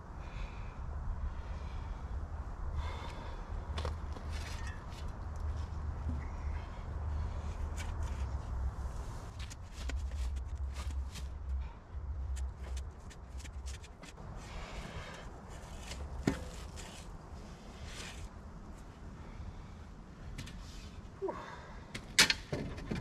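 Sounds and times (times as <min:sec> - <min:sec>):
footsteps on gravel: 0:09.2 - 0:11.4.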